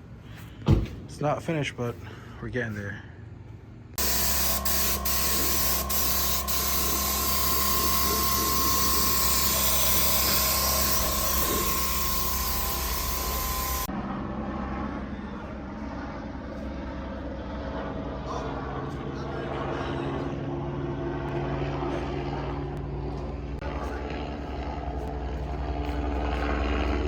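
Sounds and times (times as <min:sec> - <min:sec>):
spray gun hissing: 0:04.0 - 0:13.9
steady whine: 0:04.0 - 0:13.9.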